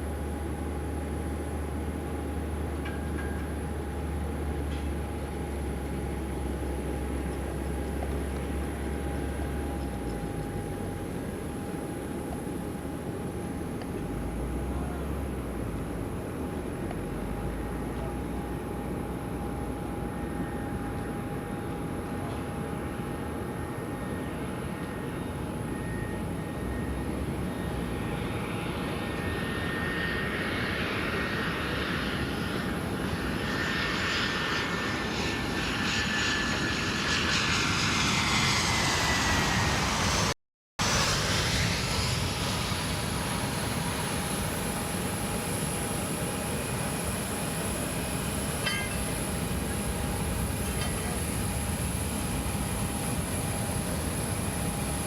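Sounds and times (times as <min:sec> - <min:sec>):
airliner engine and airflow rumble: 0:00.0 - 0:55.0
engine whine sliding down: 0:29.0 - 0:44.0.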